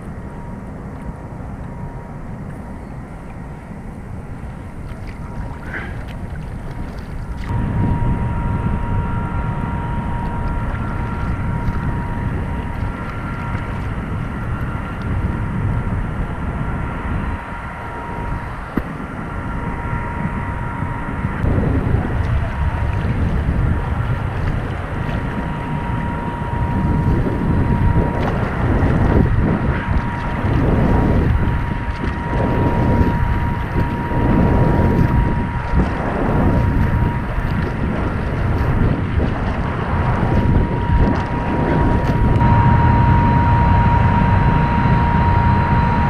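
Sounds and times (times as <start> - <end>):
wind buffeting microphone: 0.0 - 46.0
high-pitched tone: 7.5 - 15.5, 41.9 - 46.0.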